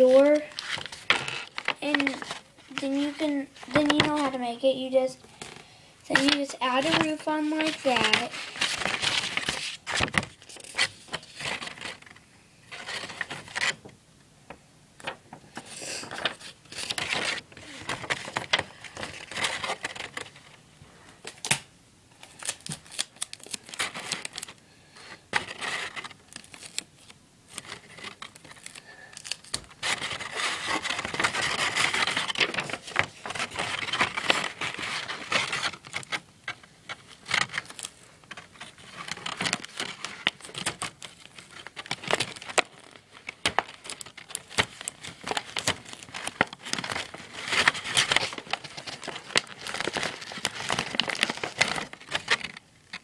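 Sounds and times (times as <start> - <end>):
paper rustling and crinkling: 0.0 - 13.9, 15.0 - 20.6, 22.2 - 53.0.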